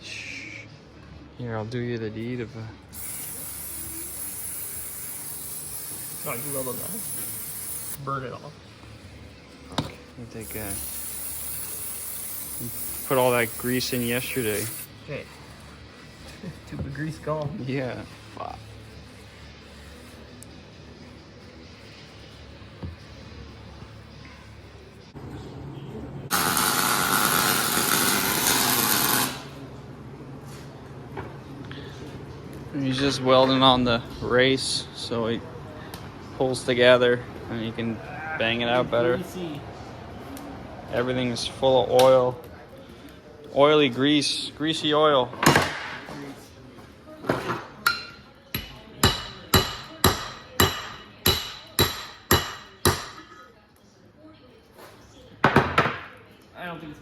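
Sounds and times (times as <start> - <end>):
electric arc welding noise: 2.9 - 8.0, 10.4 - 14.9, 26.3 - 29.6.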